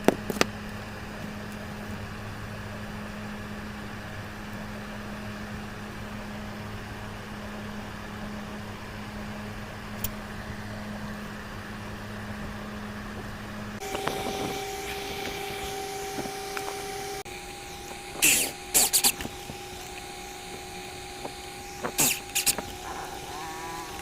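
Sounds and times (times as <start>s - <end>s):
low electrical hum: 0.0s - 24.0s
machine hiss: 13.8s - 24.0s.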